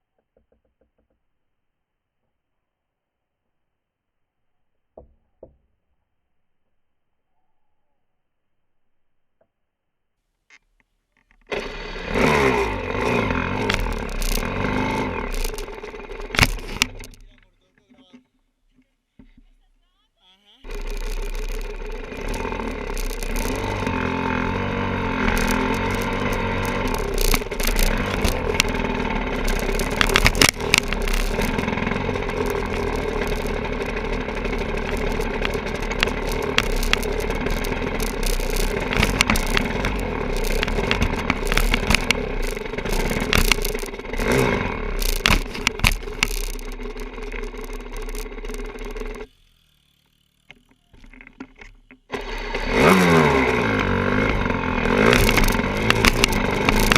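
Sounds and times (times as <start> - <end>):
clattering knocks and scrapes: 11.5 - 17.3, 20.7 - 49.2, 53.0 - 56.9
dirt bike engine running: 11.5 - 17.5, 20.7 - 56.9.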